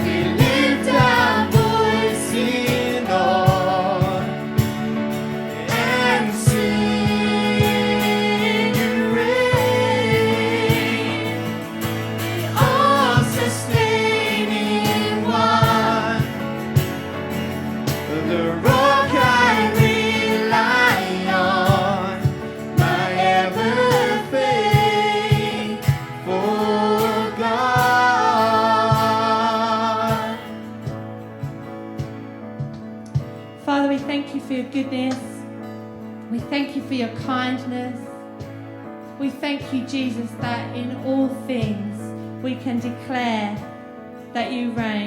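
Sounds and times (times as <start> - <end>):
worship song with instruments: 0.0 - 45.0.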